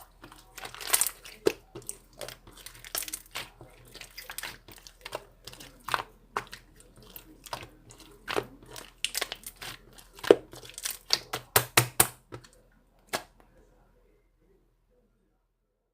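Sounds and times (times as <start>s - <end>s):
slime popping and crackling: 0.0s - 12.3s
slime being squished by hand: 0.0s - 12.5s.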